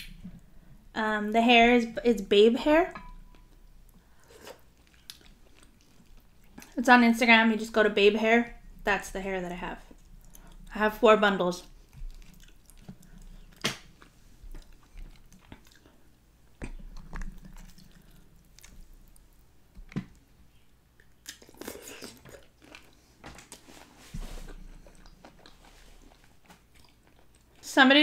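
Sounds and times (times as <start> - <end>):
chewing with wet mouth sounds: 3.1 - 6.8, 9.9 - 10.8, 11.7 - 20.3, 20.9 - 23.6, 24.5 - 27.7.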